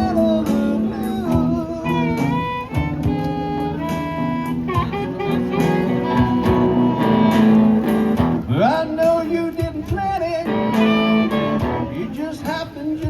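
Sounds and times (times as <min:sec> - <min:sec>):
live guitar music: 0:00.0 - 0:13.0.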